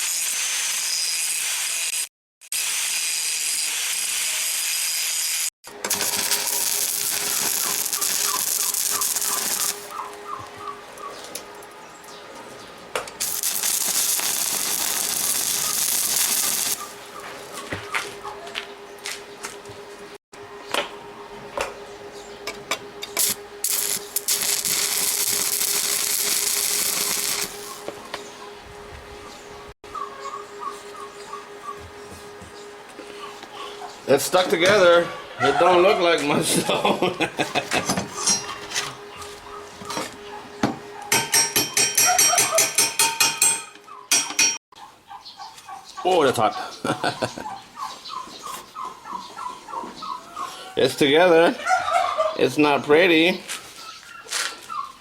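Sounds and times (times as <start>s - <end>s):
arc welding crackling and hissing: 0.0s - 10.2s, 13.2s - 17.1s, 23.0s - 28.0s.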